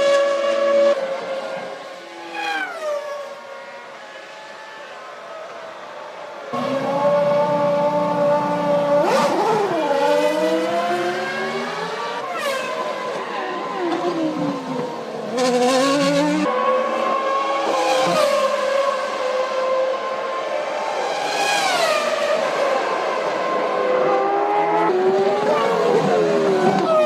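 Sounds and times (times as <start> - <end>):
racing car engines at high revs: 6.5 - 27.0.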